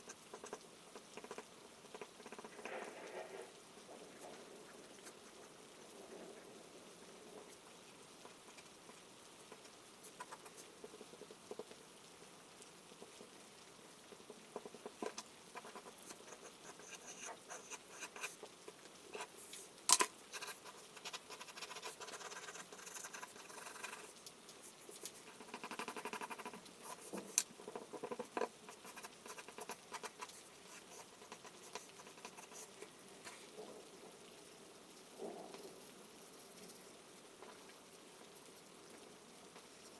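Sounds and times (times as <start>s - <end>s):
faint rain patter: 0.0s - 39.9s
charcoal scratching on paper: 14.6s - 18.5s, 20.2s - 33.4s.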